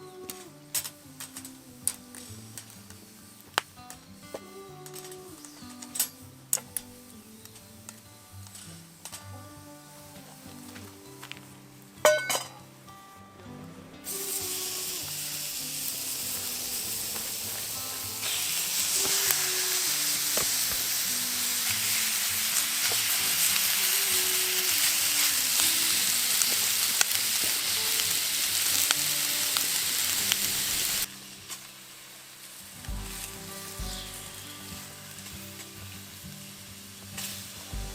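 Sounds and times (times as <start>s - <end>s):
food sizzling in a hot pan: 14.0s - 37.9s.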